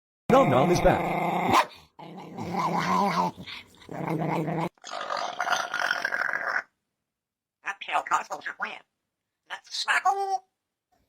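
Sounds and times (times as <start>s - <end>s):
pet growling: 0.3s - 6.7s.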